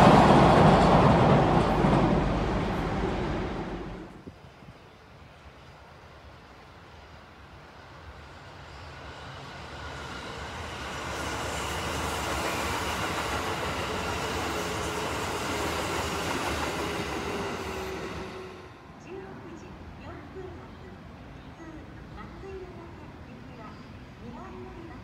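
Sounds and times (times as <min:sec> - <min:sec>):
electric train passing: 0:00.0 - 0:25.0.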